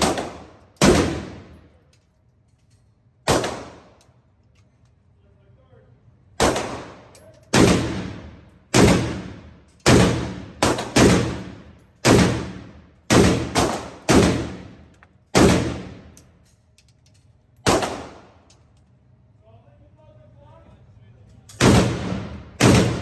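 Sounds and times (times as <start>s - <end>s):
rifle gunshots echoing: 0.0s - 1.6s, 3.3s - 4.0s, 6.4s - 16.2s, 17.6s - 18.4s, 21.6s - 23.0s.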